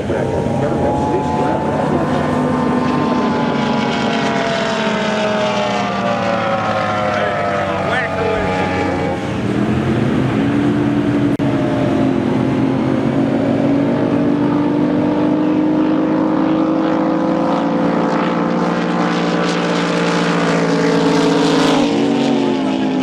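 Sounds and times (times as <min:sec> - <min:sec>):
boat engine running loud: 0:00.0 - 0:23.0.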